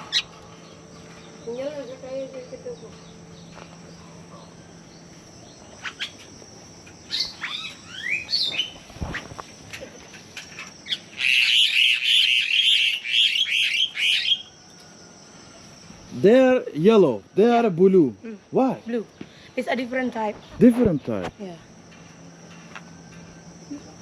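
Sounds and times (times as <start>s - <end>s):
birds chattering harshly: 0.0s - 14.6s.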